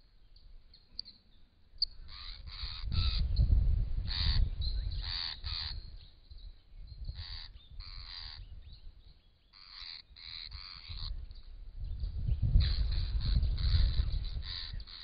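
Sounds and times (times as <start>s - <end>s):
bird harsh crow-like calls: 2.0s - 3.2s, 4.1s - 5.8s, 7.1s - 8.4s, 9.5s - 11.2s, 12.6s - 15.0s.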